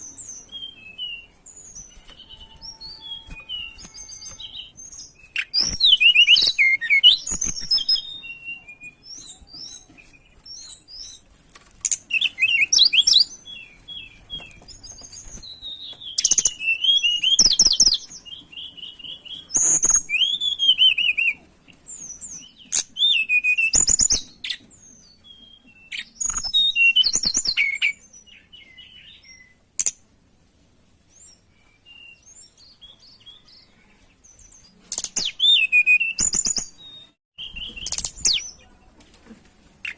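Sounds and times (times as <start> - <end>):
songbird twittering and warbling: 31.2 - 38.9.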